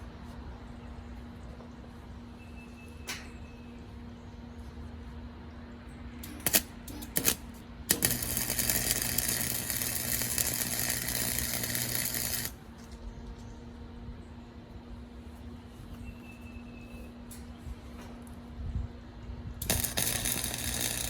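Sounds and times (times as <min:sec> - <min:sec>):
arc welder crackling: 0:06.2 - 0:12.8, 0:19.6 - 0:21.0.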